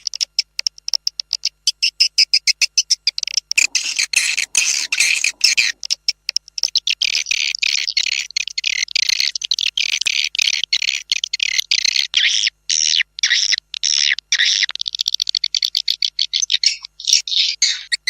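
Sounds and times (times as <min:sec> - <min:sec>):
fast buzzing trill: 0:03.6 - 0:05.8
swiftlet chirps and twitters: 0:03.6 - 0:05.8.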